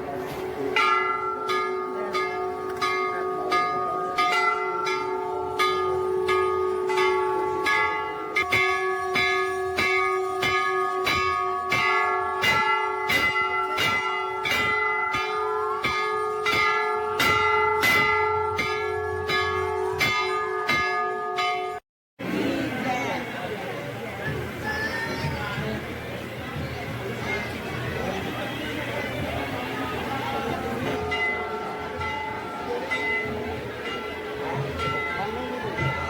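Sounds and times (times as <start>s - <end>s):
metal bells struck rapidly: 0.6s - 21.8s, 25.6s - 36.0s.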